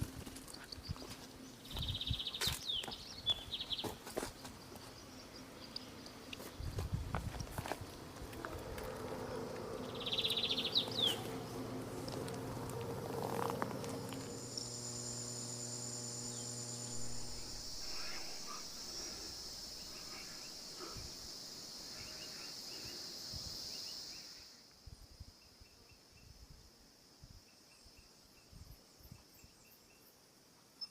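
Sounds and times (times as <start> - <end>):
faint insect chirps: 0.0 - 30.9
insects droning: 0.0 - 30.9
low hum: 7.9 - 22.6.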